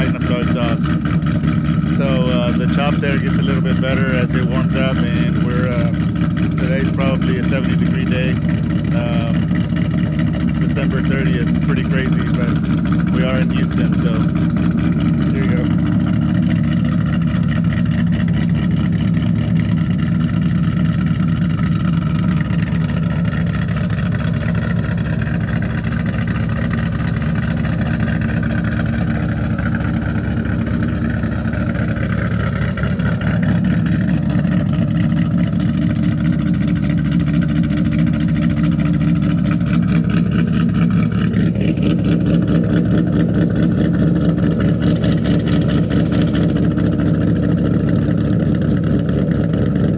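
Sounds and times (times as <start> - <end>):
car engine idling lumpily: 0.0 - 49.9.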